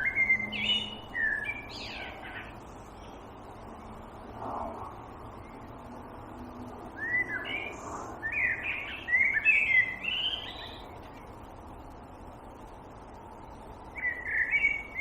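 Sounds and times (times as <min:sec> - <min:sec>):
songbird whistling: 0:00.0 - 0:02.5, 0:07.0 - 0:11.0, 0:13.9 - 0:15.0
steady background hiss: 0:00.0 - 0:15.0.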